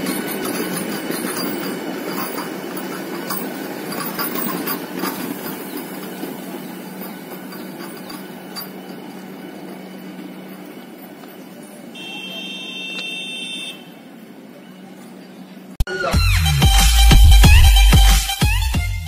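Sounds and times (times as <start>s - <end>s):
train wheels clicking on rails: 0.0s - 12.0s
train running by: 0.0s - 15.8s.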